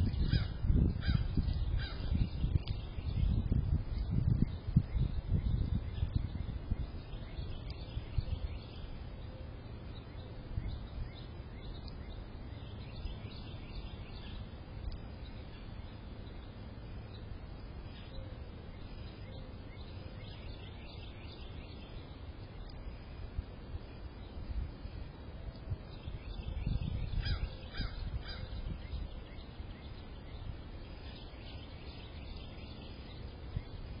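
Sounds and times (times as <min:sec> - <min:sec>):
faint bird chirps: 0:00.0 - 0:34.0
low outdoor rumble: 0:00.0 - 0:34.0
down-slurred bird calls: 0:26.4 - 0:33.8.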